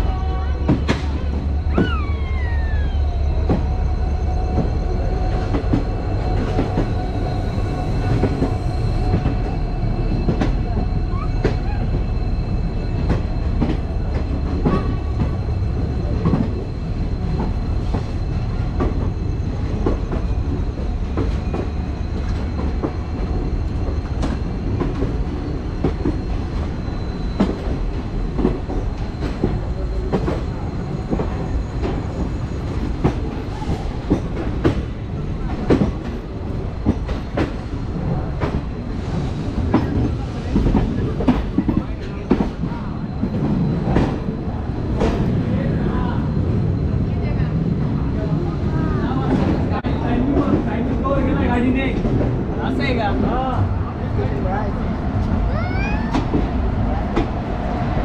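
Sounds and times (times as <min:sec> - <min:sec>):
train coaches rumbling on track: 0:00.0 - 0:58.0
high-pitched wheel squeal: 0:01.6 - 0:13.2.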